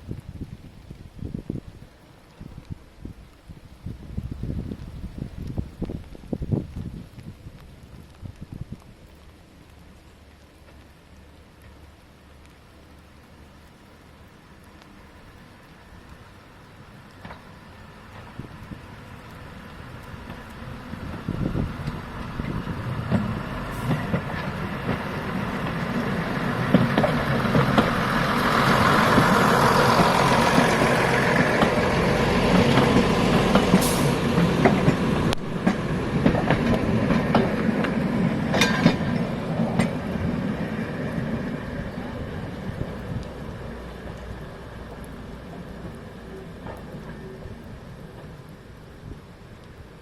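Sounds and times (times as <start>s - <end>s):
train passing close by: 11.5s - 50.0s.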